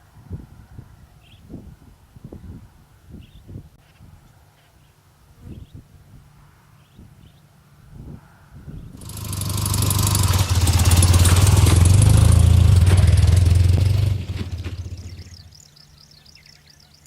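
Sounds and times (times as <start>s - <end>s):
vehicle engine running: 9.0s - 16.4s.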